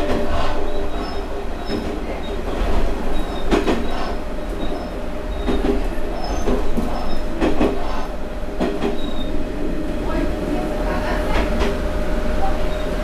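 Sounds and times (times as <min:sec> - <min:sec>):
wheels clacking over rail joints: 0:00.0 - 0:09.3
railcar engine drone: 0:00.0 - 0:13.0.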